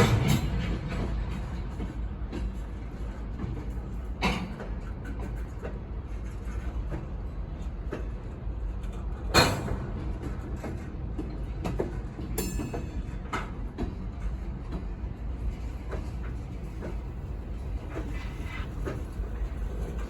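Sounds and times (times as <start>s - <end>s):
freight train rumbling past: 0.0s - 20.0s
sharp metallic clanks: 12.4s - 13.4s.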